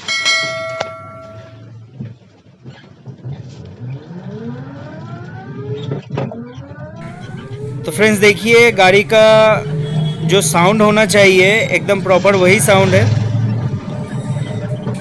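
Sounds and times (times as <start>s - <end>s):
metallic ringing note: 0.0s - 1.8s.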